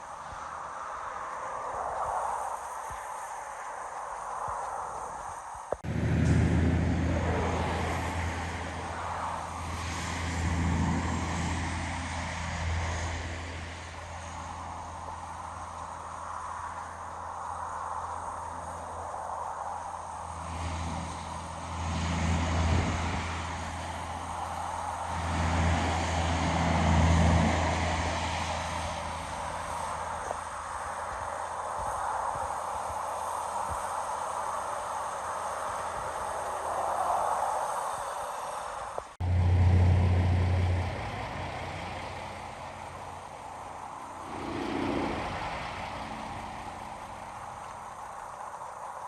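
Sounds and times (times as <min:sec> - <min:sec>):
large engine humming: 0:05.8 - 0:19.2, 0:19.8 - 0:31.7, 0:39.2 - 0:48.8.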